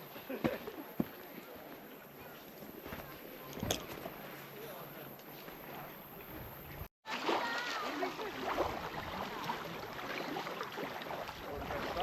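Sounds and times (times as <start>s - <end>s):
water splashing: 7.1s - 12.0s.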